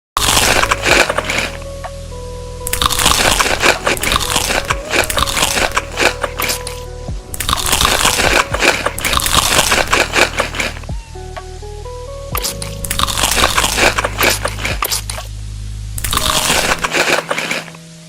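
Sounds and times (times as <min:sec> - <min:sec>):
quiet background music: 0:00.2 - 0:18.0
crunchy food being chewed: 0:02.7 - 0:06.6, 0:07.4 - 0:10.8, 0:12.4 - 0:15.2, 0:16.0 - 0:17.6.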